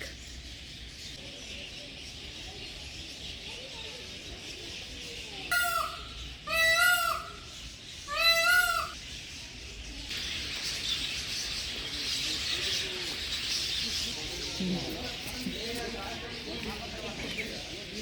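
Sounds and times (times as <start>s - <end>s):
large bird calling: 4.9s - 9.1s.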